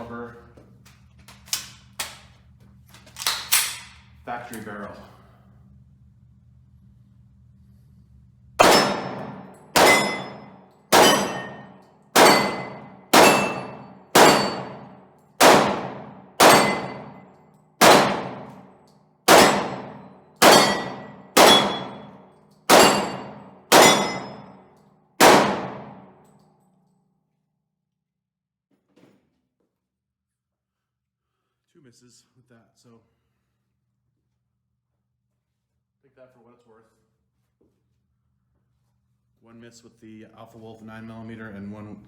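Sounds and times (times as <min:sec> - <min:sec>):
pistol shots: 0:08.6 - 0:17.2, 0:17.8 - 0:18.6, 0:19.3 - 0:24.5, 0:25.2 - 0:26.1
bullets clanging on steel targets: 0:08.6 - 0:26.5.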